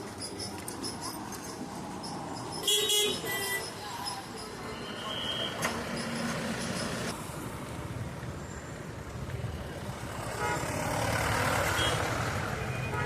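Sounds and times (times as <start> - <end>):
road traffic rumble: 0.0 - 13.0
vehicle horn: 10.4 - 10.8, 11.7 - 12.0, 12.6 - 13.0.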